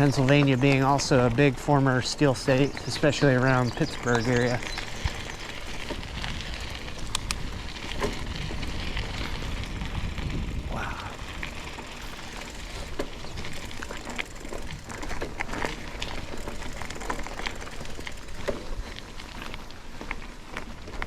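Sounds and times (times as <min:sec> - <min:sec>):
bicycle tyres crunching on trail: 0:00.0 - 0:21.0
wind on microphone: 0:03.9 - 0:13.6.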